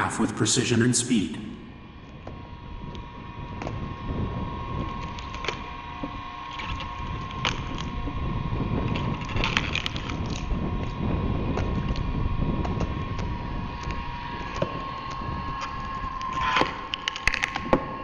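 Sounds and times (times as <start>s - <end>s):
log splitter motor humming: 1.8s - 18.0s
wood cracking: 4.8s - 8.0s, 8.9s - 10.6s, 11.5s - 18.0s.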